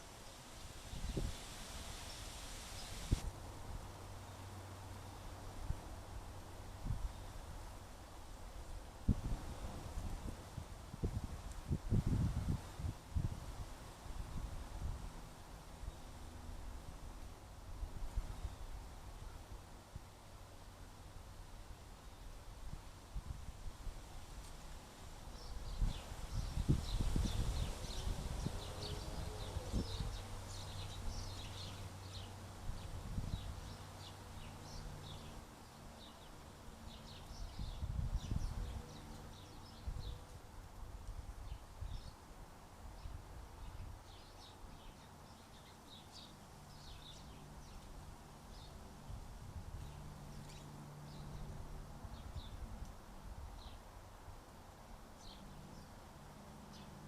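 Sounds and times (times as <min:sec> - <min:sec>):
small birds chirping: 0:25.3 - 0:40.5, 0:41.4 - 0:42.3, 0:42.9 - 0:52.6, 0:53.6 - 0:53.8, 0:55.2 - 0:57.0.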